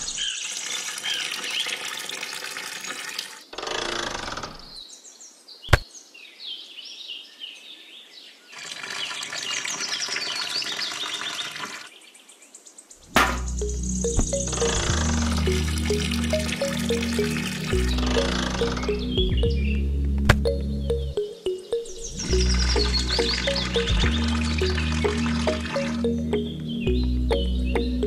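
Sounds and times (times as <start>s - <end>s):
birds chirping: 0.0s - 3.0s, 4.6s - 28.0s
music: 13.2s - 28.0s.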